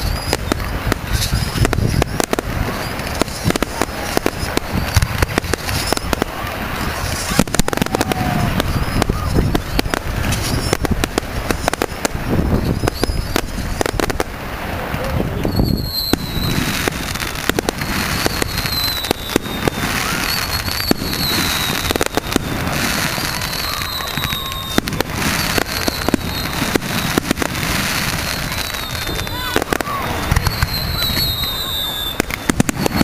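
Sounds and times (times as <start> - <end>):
fireworks banging and crackling: 0.0 - 33.0
high falling whistle: 15.4 - 16.7, 17.9 - 27.2, 28.4 - 33.0.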